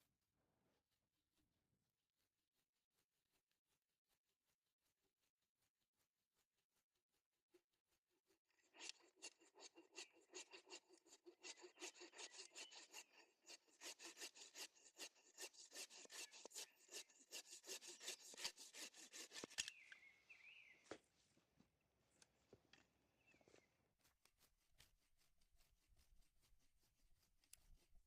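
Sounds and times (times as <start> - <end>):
hand tool strokes on wood: 8.5 - 19.8.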